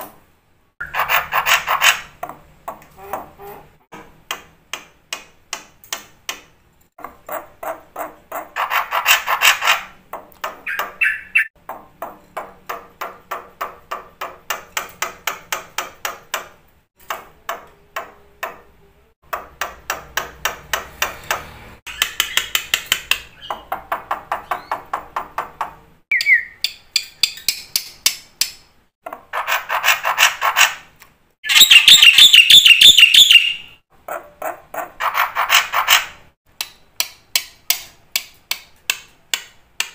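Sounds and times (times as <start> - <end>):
starling rattling song: 0.8 - 2.1, 31.4 - 33.8
bird whistle: 10.7 - 11.5, 26.1 - 26.6, 31.4 - 33.8.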